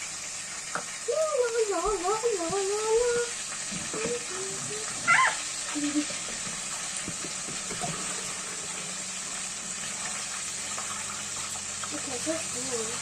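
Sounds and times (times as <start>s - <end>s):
tap running into sink: 6.1s - 8.4s.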